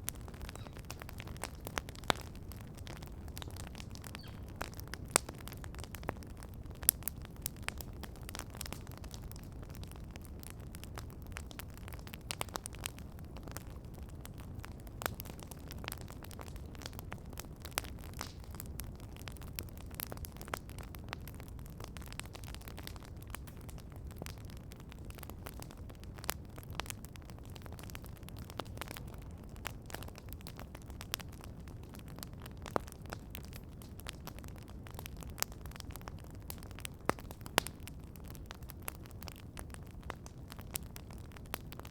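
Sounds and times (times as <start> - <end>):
campfire crackling and popping: 0.0 - 41.9
low rumble of burning: 0.0 - 41.9.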